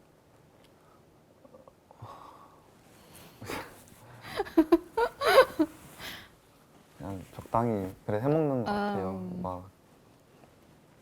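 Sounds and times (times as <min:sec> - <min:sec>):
breath: 0:01.9 - 0:04.4, 0:06.0 - 0:06.4
person laughing softly: 0:03.4 - 0:05.8.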